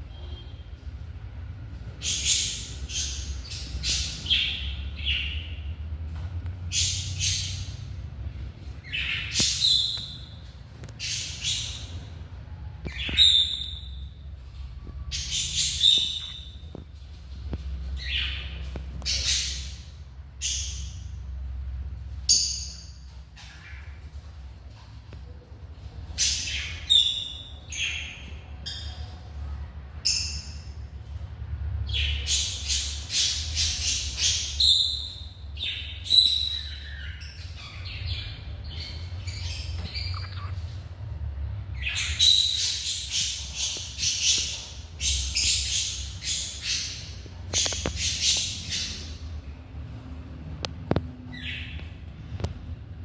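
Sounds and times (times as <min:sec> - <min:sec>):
parrots squawking and chirping: 0:31.9 - 0:41.0, 0:41.8 - 0:49.4.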